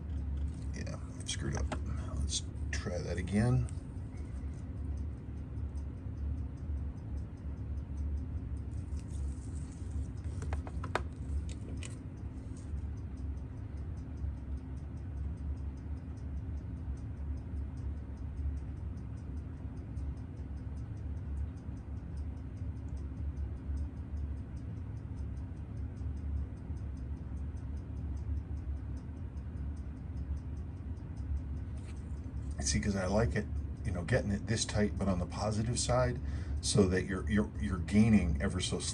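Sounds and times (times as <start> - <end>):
sharp clicks: 0.0 - 38.9
steady low hum: 0.0 - 38.9
fast even ticking: 0.1 - 38.9.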